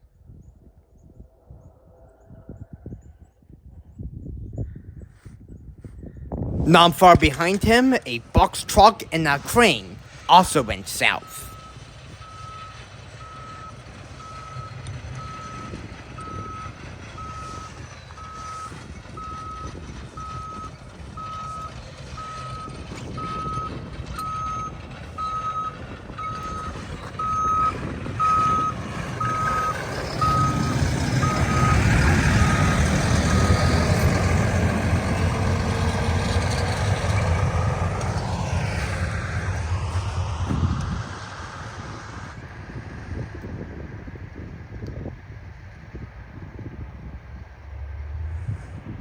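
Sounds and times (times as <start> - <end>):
backup alarm beeping: 24.2 - 33.5
vehicle engine passing: 26.4 - 43.2.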